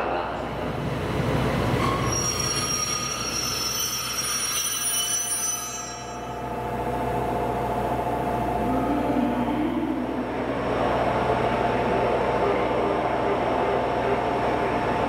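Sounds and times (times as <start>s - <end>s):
train rumble: 0.0s - 15.0s
train wheels squealing: 1.8s - 6.4s.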